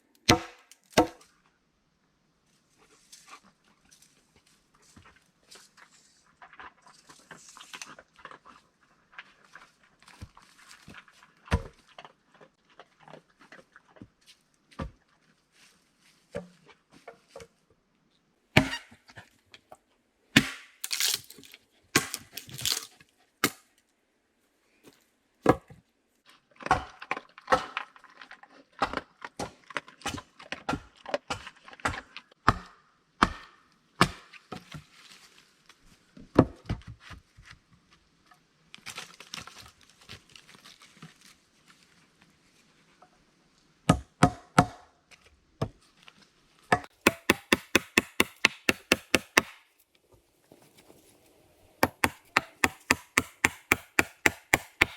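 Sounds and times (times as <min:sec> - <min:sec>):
hand tools chopping wood: 0:00.2 - 0:01.2, 0:18.6 - 0:18.9, 0:20.4 - 0:23.6, 0:28.8 - 0:34.3, 0:46.7 - 0:49.7, 0:51.8 - 0:54.9
rough scraping on wood: 0:46.9 - 0:49.6, 0:50.5 - 0:54.9.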